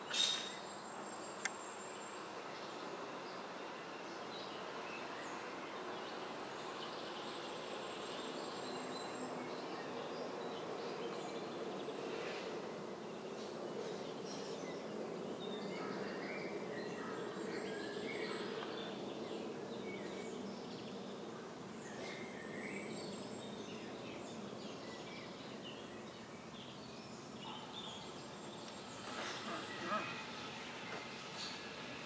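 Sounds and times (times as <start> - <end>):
outdoor background noise: 0.0 - 32.0
short bird chirps: 0.1 - 0.6.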